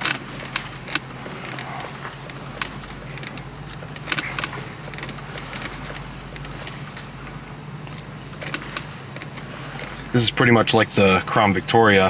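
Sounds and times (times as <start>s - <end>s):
light clicks and taps: 0.0s - 7.2s
car engine idling: 0.0s - 12.0s.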